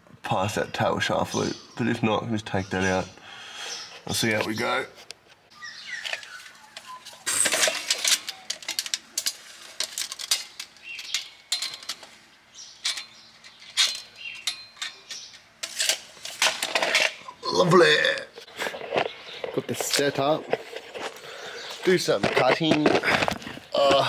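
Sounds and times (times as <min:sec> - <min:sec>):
metal pipe clinking and knocking: 0:06.0 - 0:12.2, 0:12.8 - 0:17.2.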